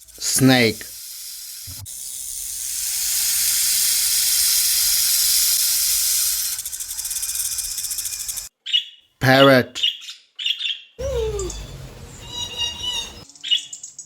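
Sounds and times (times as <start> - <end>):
snake hissing: 0.0 - 8.5.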